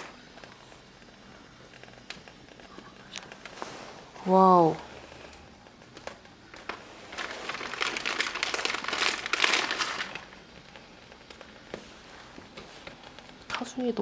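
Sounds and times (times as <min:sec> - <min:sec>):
plastic packaging crinkling: 0:05.7 - 0:14.0.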